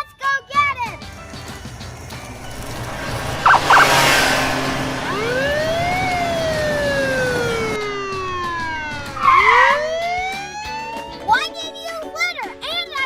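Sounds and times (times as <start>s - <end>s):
police siren wailing: 2.2s - 11.6s.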